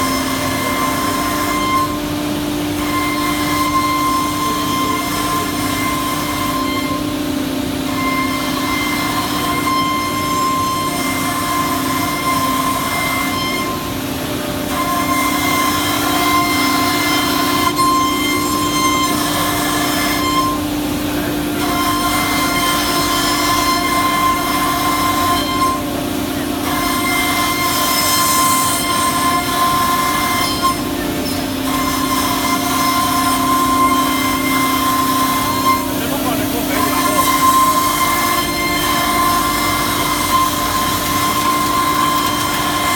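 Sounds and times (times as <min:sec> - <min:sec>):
cnc router spindle whine: 0:00.0 - 0:42.9.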